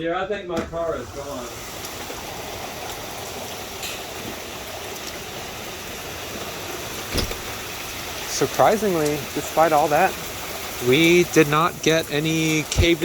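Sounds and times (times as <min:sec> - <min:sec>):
rain rushing: 0:00.3 - 0:13.0
running water: 0:00.5 - 0:13.0
sharp thump: 0:07.1 - 0:07.5.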